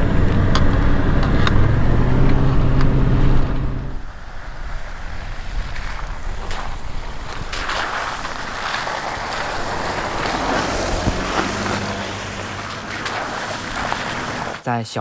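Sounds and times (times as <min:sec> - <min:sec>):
vehicle engine running: 0:00.0 - 0:04.0, 0:08.2 - 0:14.6.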